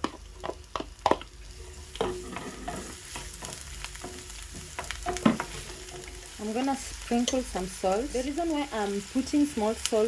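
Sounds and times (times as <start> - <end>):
onions sizzling in a pan: 0.0 - 10.0
utensil knocking against pan: 3.4 - 6.1.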